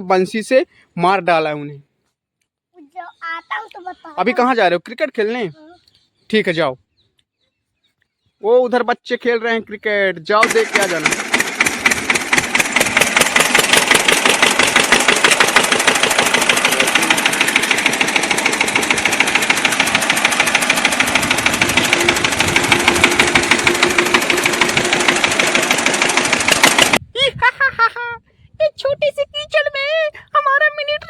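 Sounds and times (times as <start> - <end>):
toy tractor engine chugging: 10.4 - 27.0.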